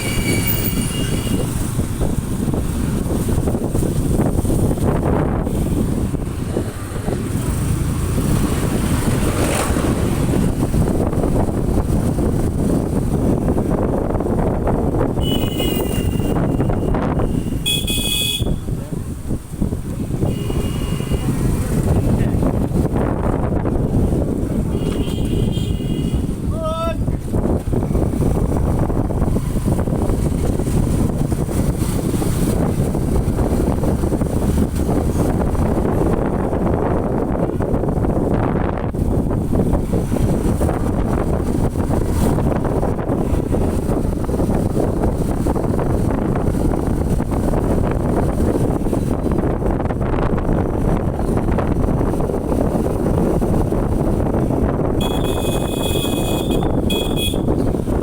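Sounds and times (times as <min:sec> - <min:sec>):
vehicle horn beeping: 0:00.0 - 0:01.6, 0:15.2 - 0:18.7, 0:20.2 - 0:21.6, 0:24.7 - 0:26.4, 0:55.0 - 0:57.7
motorcycle road and engine noise: 0:00.0 - 0:58.0
wind on microphone: 0:00.0 - 0:58.0.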